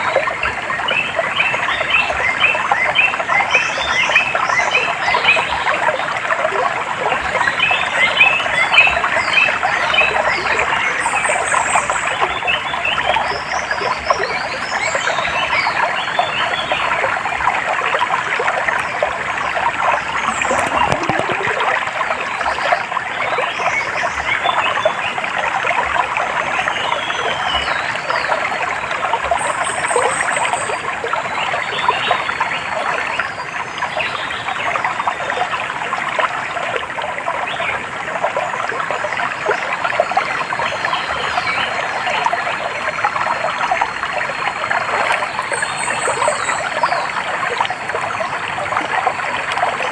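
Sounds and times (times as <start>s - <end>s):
water trickling and babbling: 0.0s - 49.9s.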